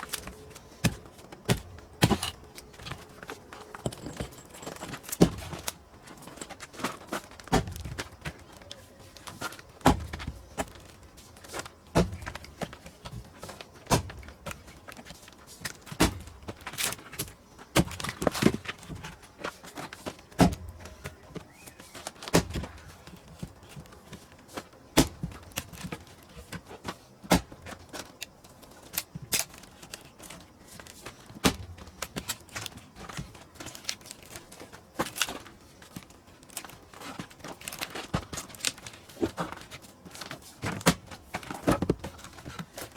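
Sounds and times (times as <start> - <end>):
heavy blows splitting firewood: 0.0 - 8.4, 9.3 - 13.2, 13.8 - 14.7, 15.6 - 19.2, 20.3 - 21.1, 22.1 - 23.9, 24.9 - 28.2, 31.3 - 34.4, 35.0 - 42.9
small knocks: 0.0 - 8.6.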